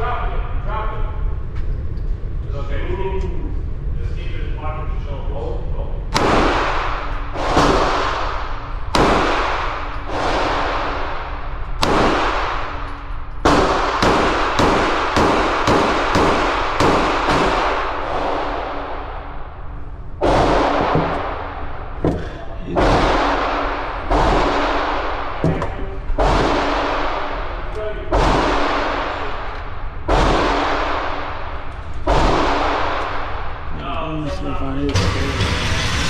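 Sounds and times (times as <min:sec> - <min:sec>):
gunshots echoing indoors: 0:06.1 - 0:33.9.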